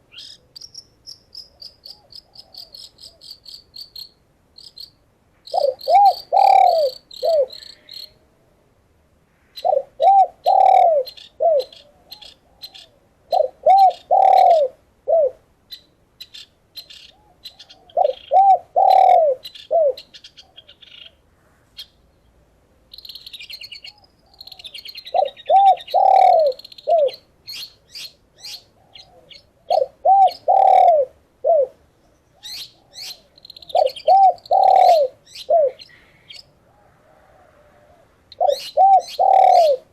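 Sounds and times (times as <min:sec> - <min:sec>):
small birds chirping: 0:00.0 - 0:08.2, 0:09.5 - 0:14.7, 0:15.7 - 0:30.9, 0:31.9 - 0:36.9, 0:38.3 - 0:39.9
dove cooing: 0:01.8 - 0:03.2, 0:05.5 - 0:08.3, 0:09.6 - 0:15.4, 0:17.1 - 0:20.8, 0:23.8 - 0:27.6, 0:28.4 - 0:31.8, 0:32.4 - 0:39.9.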